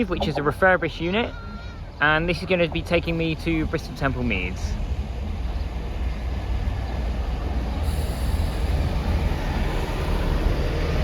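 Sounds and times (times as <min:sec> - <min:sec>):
diesel train rumbling: 0:00.0 - 0:11.0.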